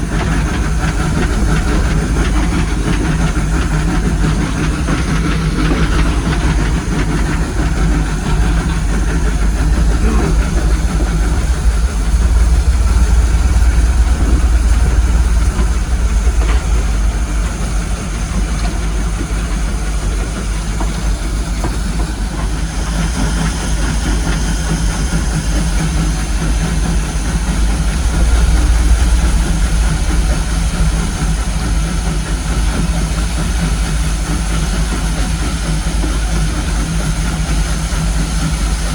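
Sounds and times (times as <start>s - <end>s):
high whine: 0.0s - 21.3s, 24.6s - 34.4s
train rumble with hiss: 0.0s - 38.9s.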